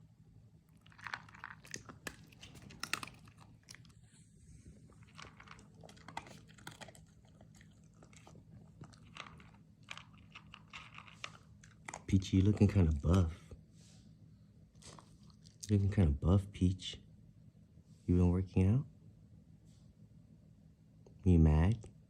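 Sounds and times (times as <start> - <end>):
dog chewing and crunching: 0.7 - 13.3, 14.8 - 15.7.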